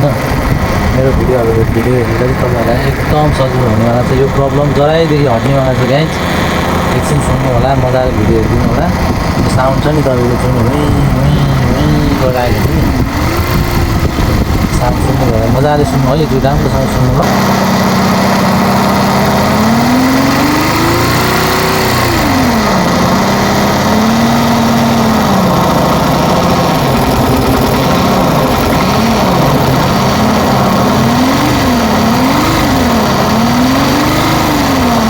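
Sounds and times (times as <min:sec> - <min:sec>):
person talking: 0:00.0 - 0:17.5
abnormal engine noise: 0:00.0 - 0:35.0
motorcycle engine revving: 0:00.0 - 0:35.0.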